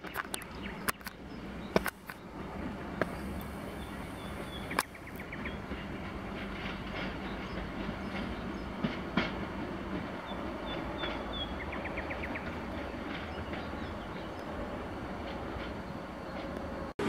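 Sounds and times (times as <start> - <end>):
wheels knocking over rail joints: 0.0 - 16.6
train wheels on rails: 0.0 - 17.0
diesel engine drone: 0.2 - 8.6.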